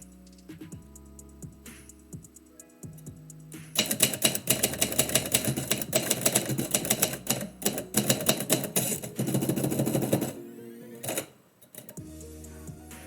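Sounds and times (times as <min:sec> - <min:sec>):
typewriter keys clacking: 0:03.8 - 0:10.4, 0:11.0 - 0:12.0.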